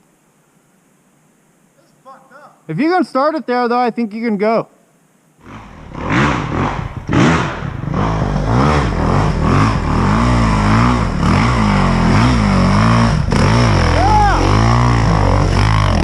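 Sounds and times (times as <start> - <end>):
dirt bike engine revving: 5.4 - 16.0.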